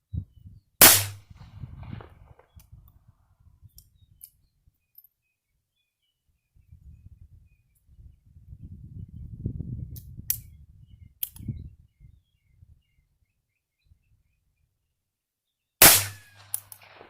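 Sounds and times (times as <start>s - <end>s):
loud pistol shot: 0.8s - 2.2s, 15.8s - 17.0s
small click: 11.2s - 11.5s
sharp metallic clicks: 15.8s - 17.0s.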